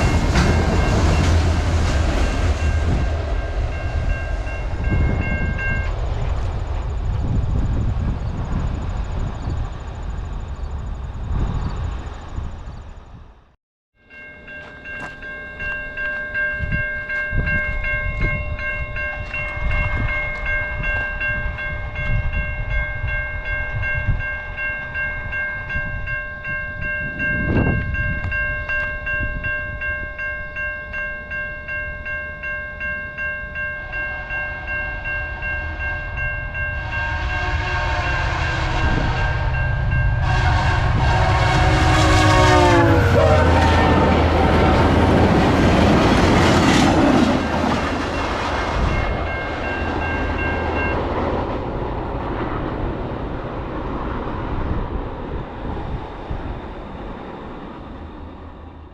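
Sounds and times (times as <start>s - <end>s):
crossing warning bell ringing: 0.0s - 8.2s, 14.0s - 52.3s
train rumble: 0.0s - 58.9s
train horn: 33.8s - 45.6s.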